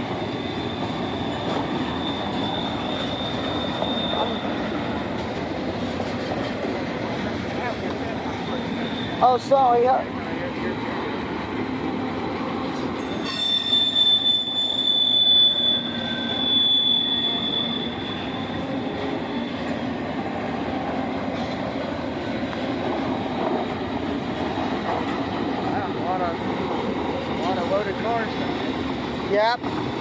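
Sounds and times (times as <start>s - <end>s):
high-pitched wheel squeal: 0.0s - 5.0s, 8.2s - 9.6s, 12.8s - 20.1s
train wheels rumbling on rails: 0.0s - 30.0s.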